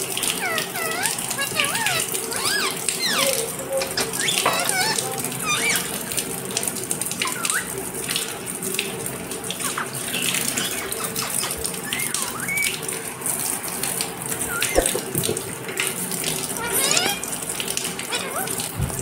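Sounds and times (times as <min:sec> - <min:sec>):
bird chirps and whistles: 0:00.9 - 0:05.9, 0:07.2 - 0:07.7, 0:10.6 - 0:12.8, 0:14.5 - 0:15.0.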